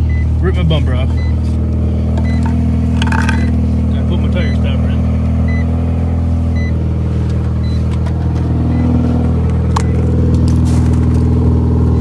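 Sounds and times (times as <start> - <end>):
rotary engine idling: 0.0 - 12.0.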